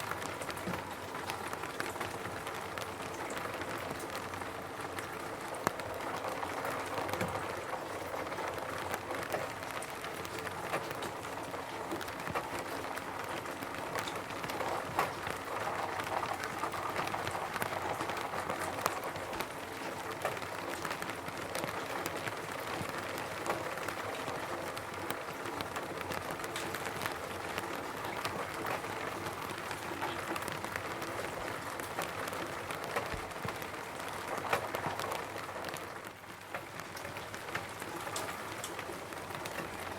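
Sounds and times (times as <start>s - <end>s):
rain hissing on a roof: 0.0s - 39.9s.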